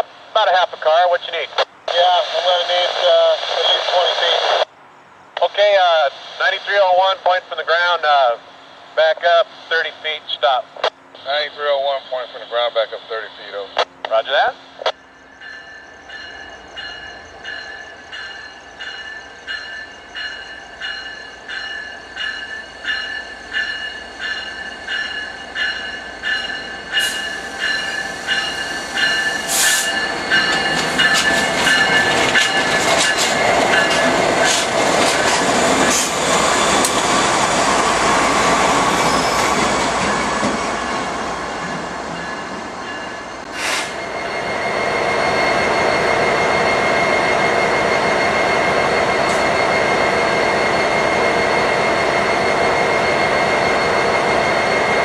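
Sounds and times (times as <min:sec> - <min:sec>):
locomotive engine and wheels: 0:00.0 - 0:55.0
wheels squealing: 0:14.6 - 0:55.0
bell ringing: 0:15.0 - 0:34.2.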